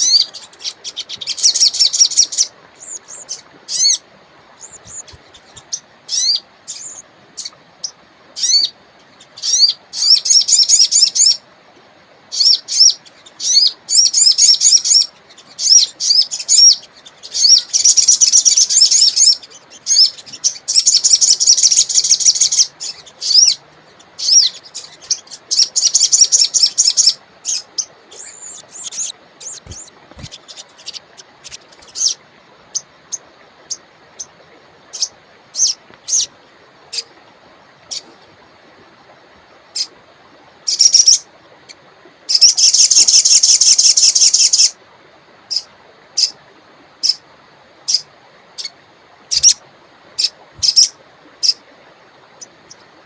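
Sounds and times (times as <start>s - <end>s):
songbird singing: 0.0s - 11.5s, 12.3s - 38.3s, 40.7s - 44.8s, 47.8s - 49.6s, 50.2s - 53.0s
faint river rush: 0.0s - 53.0s
sharp bird chips: 28.2s - 31.6s.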